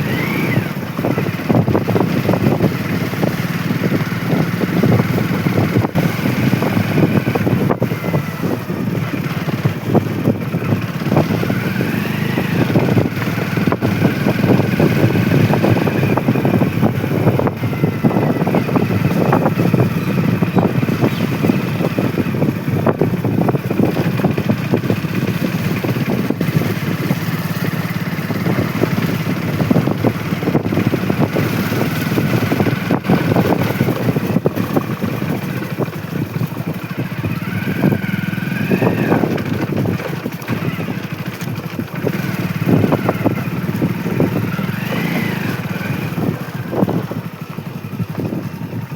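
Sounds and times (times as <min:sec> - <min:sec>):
gusty rushing noise: 0:00.0 - 0:48.9
motorcycle engine running: 0:00.0 - 0:48.9.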